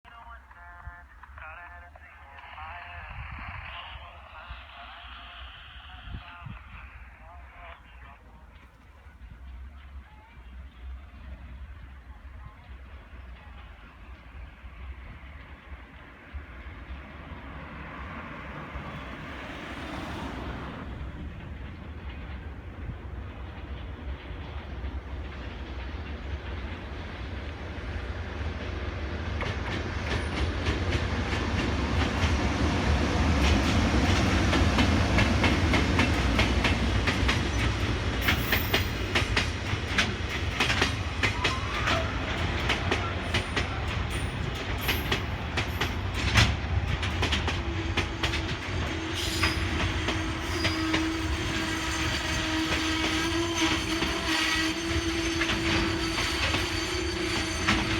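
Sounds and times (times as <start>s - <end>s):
freight train rumble: 0.1s - 57.9s
train brakes squealing: 37.3s - 39.4s, 41.1s - 46.2s, 47.8s - 57.9s.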